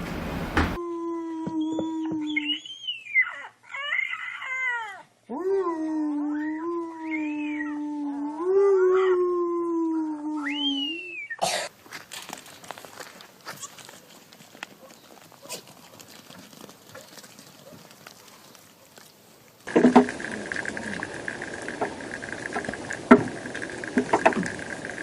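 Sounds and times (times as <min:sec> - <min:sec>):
pet animal yowling: 0:02.0 - 0:11.4.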